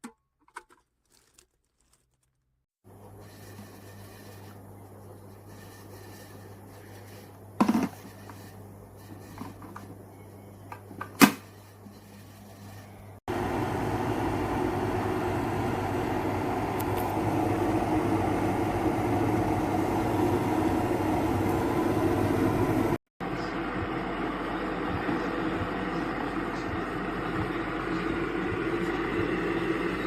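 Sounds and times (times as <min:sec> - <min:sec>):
electric kettle heating water: 0:13.3 - 0:23.0, 0:23.6 - 0:30.0.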